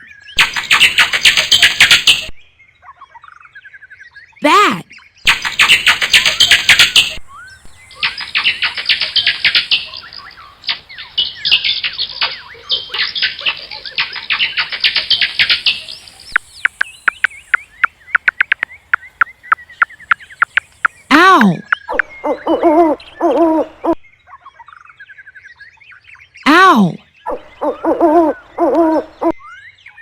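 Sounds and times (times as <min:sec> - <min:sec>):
bats squeaking and chittering: 0:00.4 - 0:02.3, 0:05.3 - 0:23.3.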